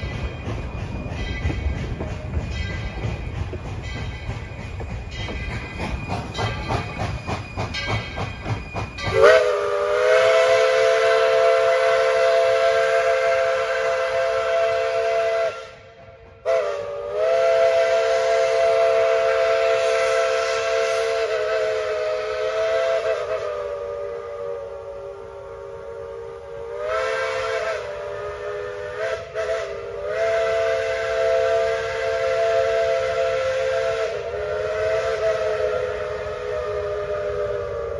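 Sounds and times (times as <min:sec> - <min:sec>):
steam locomotive chime whistle: 0:00.0 - 0:37.9.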